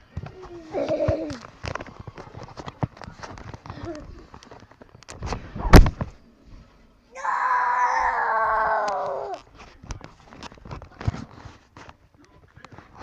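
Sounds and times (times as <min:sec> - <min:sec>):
long high-pitched cry: 0:07.2 - 0:09.4.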